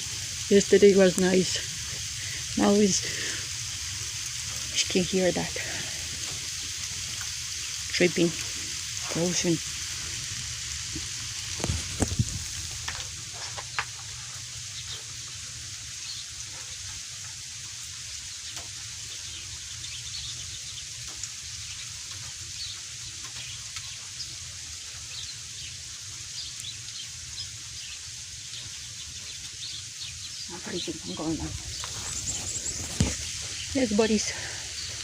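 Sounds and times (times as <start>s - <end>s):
freezing rain hissing: 0.0s - 35.0s
ticks and drips on ice: 16.1s - 27.5s.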